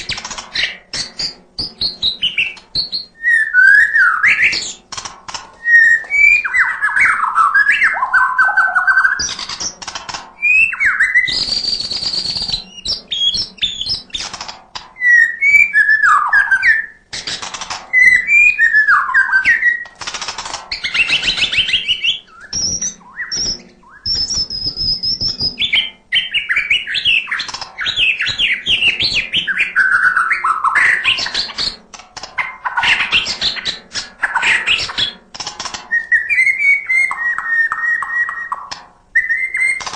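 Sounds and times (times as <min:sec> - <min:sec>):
songbird singing whistled phrases: 0:00.0 - 0:04.8, 0:05.6 - 0:09.7, 0:10.4 - 0:14.3, 0:15.0 - 0:17.0, 0:17.9 - 0:20.0, 0:20.7 - 0:31.8, 0:35.9 - 0:39.9
harsh rasping bird notes: 0:00.0 - 0:39.9
high thin bird whistles: 0:20.8 - 0:31.7, 0:39.2 - 0:39.8.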